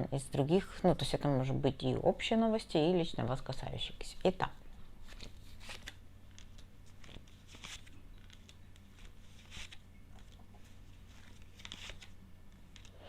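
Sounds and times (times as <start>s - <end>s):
cards rustling and sliding: 5.0s - 13.0s.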